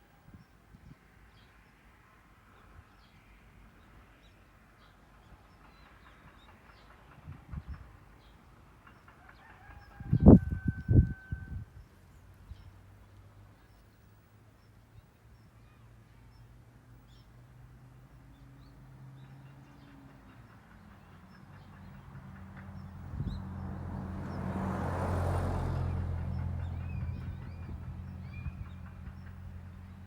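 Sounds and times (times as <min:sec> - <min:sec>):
vehicle passing by: 0:20.9 - 0:30.0.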